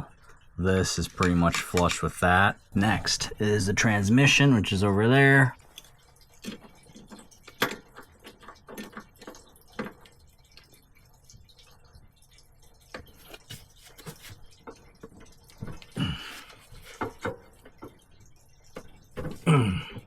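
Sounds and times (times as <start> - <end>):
hand tools clicking and knocking: 1.1 - 2.2.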